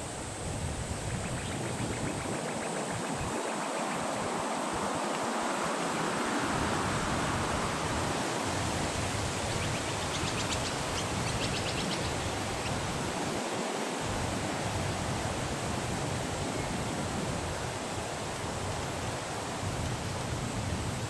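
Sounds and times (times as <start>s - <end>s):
bird chirping: 9.5s - 12.8s.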